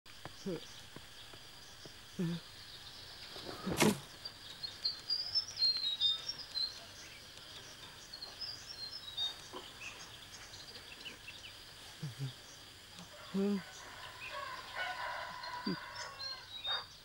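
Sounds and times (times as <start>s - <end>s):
faint steady outdoor hiss: 0.1s - 17.0s
small birds chirping: 0.1s - 17.0s.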